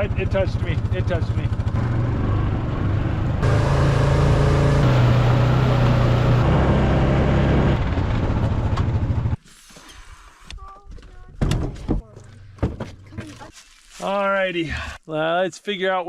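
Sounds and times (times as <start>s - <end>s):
truck engine running: 0.0s - 9.4s.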